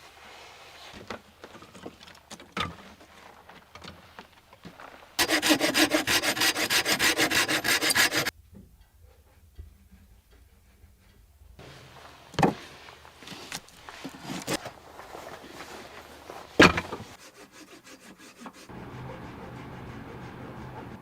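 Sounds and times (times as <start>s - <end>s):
hand saw cutting wood: 5.2s - 8.3s, 13.4s - 14.7s, 16.6s - 21.0s.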